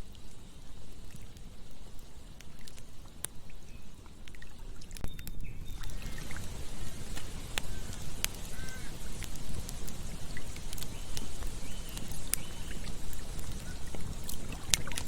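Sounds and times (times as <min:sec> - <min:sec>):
broad hiss: 0:00.0 - 0:03.6, 0:05.6 - 0:15.0
campfire crackling and popping: 0:00.0 - 0:15.0
faint short chirps: 0:05.0 - 0:06.2, 0:07.6 - 0:09.0.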